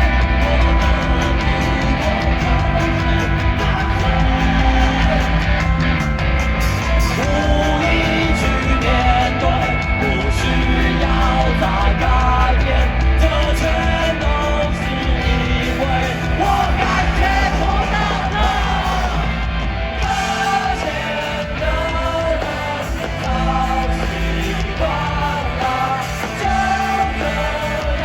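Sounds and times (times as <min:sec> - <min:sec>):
person singing: 0:00.0 - 0:05.7, 0:07.0 - 0:19.4
rock band playing: 0:00.0 - 0:28.0.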